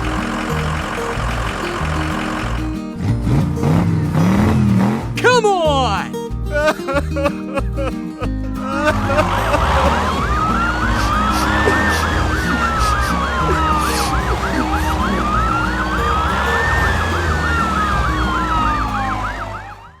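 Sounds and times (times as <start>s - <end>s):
music with bass line: 0.0s - 20.0s
siren yelp and wail: 8.8s - 20.0s.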